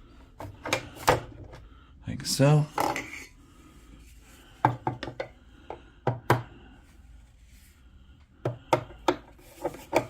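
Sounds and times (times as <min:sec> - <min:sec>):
plastic parts knocking and clicking: 0:00.4 - 0:01.6, 0:04.6 - 0:06.5, 0:08.4 - 0:10.0.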